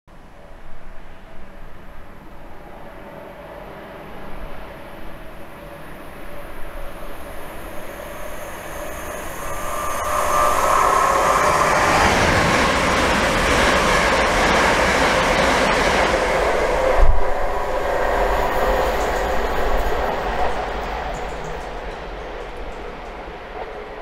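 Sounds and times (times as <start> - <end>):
train rushing past: 0.4 - 24.0
brief whine: 7.4 - 13.3.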